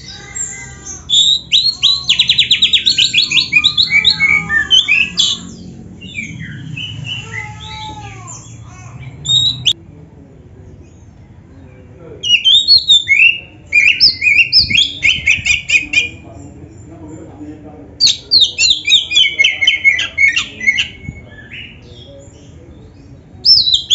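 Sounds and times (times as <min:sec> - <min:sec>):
bird singing whistled notes: 0:00.0 - 0:07.3, 0:09.2 - 0:09.8, 0:12.2 - 0:16.2, 0:23.4 - 0:23.9.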